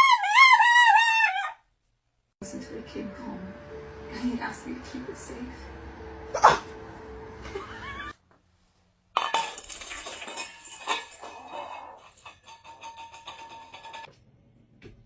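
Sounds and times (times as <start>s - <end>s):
hard objects clinking and clattering: 9.2s - 14.1s.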